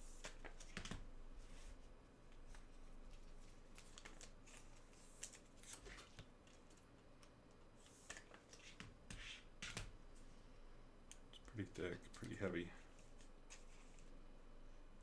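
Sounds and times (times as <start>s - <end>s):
trading cards rustling and clicking: 0.2s - 1.0s, 2.3s - 10.0s, 11.4s - 14.2s.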